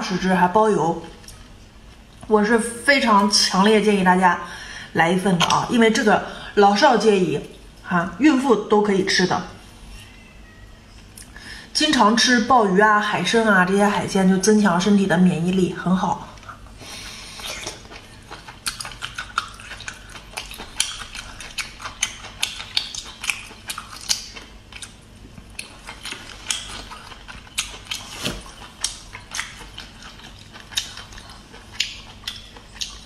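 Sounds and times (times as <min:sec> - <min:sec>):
wet chewing mouth clicks: 0:16.4 - 0:33.0.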